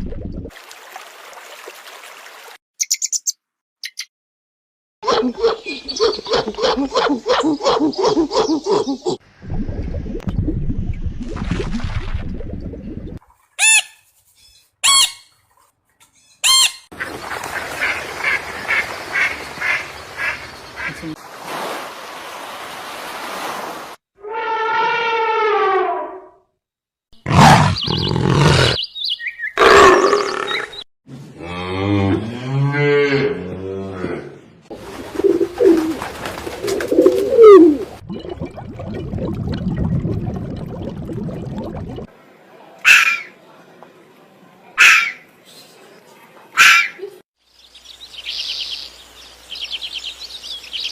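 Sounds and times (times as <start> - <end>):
deep animal grunt: 27.2 - 28.8
loud rising and falling bird calls: 27.3 - 30.8
pigeon cooing: 36.6 - 37.9.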